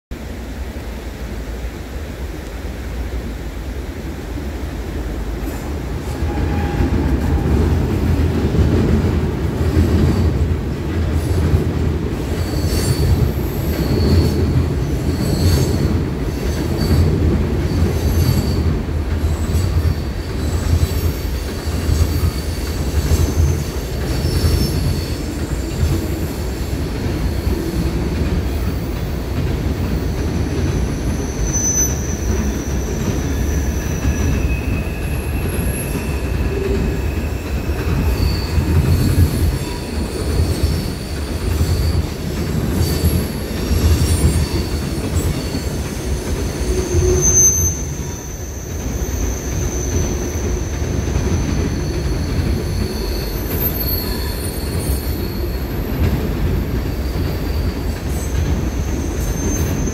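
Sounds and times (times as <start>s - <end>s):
freight train rumble: 0.1s - 59.9s
wheel squeals: 30.7s - 56.0s, 56.9s - 59.9s.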